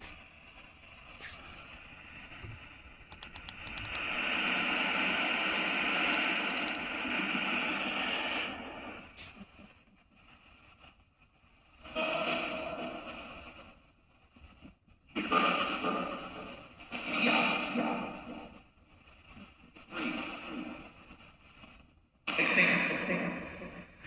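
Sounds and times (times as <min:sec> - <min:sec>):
radio static hiss with clicks: 0:01.0 - 0:09.6, 0:22.3 - 0:24.0.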